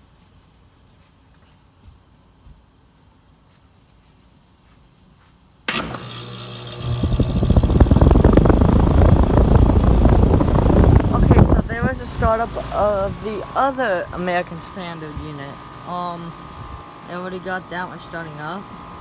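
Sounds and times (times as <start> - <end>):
heat pump unit running: 5.7 - 19.0.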